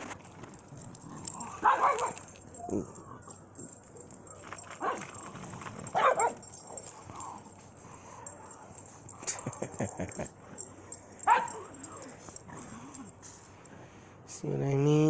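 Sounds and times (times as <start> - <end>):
dog barking: 1.4 - 2.3, 4.8 - 5.2, 5.9 - 6.4, 11.2 - 12.1.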